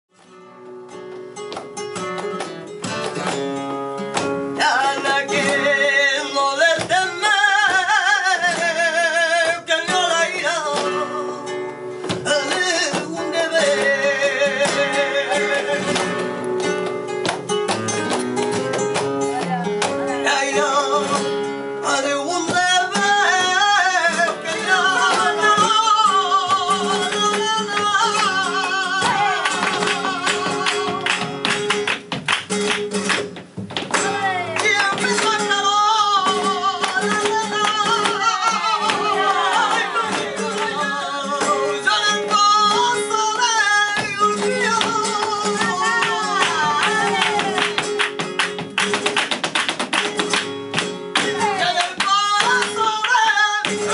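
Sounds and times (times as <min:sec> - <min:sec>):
flamenco guitar: 0:00.1 - 0:53.9
man singing ornamented lines: 0:04.6 - 0:11.6, 0:12.2 - 0:16.0, 0:20.1 - 0:31.0.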